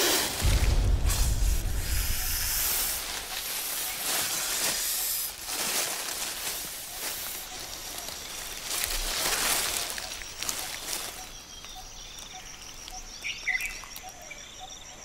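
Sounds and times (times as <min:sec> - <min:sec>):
snake hissing: 0:00.0 - 0:05.6
rustling dry leaves: 0:00.0 - 0:14.2.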